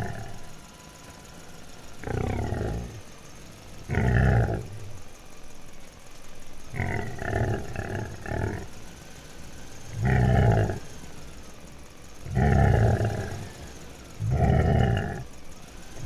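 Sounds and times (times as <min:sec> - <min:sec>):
roar-like animal calls: 0:00.0 - 0:00.6, 0:02.0 - 0:05.1, 0:06.7 - 0:08.9, 0:09.8 - 0:11.2, 0:12.2 - 0:16.0.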